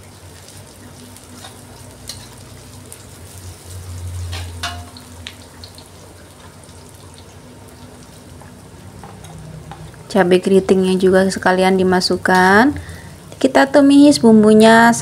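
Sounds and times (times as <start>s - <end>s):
food sizzling in hot oil: 0.0s - 15.0s
metal spatula scraping a wok: 1.4s - 2.5s, 3.9s - 4.9s.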